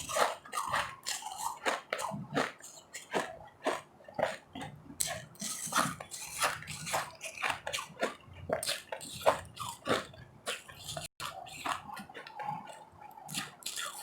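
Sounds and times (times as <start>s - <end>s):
ice being chewed: 0.0s - 14.0s.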